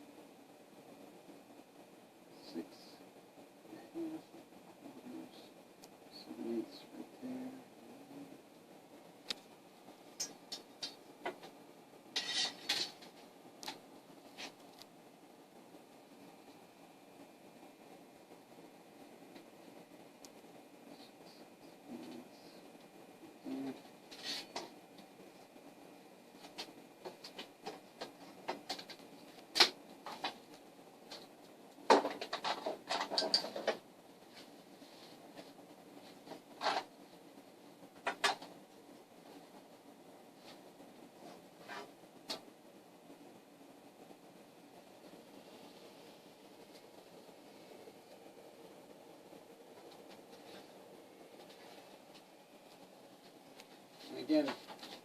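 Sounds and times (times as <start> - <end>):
tools clicking and tapping on work surface: 31.9 - 33.8.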